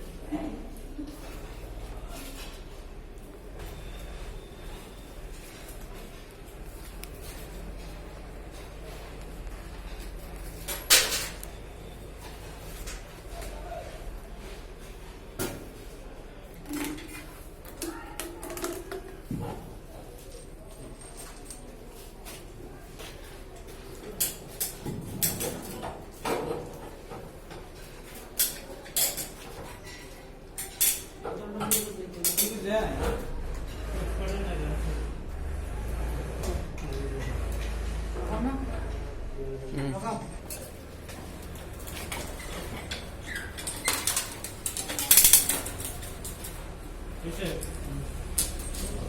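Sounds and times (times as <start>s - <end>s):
hard objects clinking and knocking: 41.7s - 46.6s.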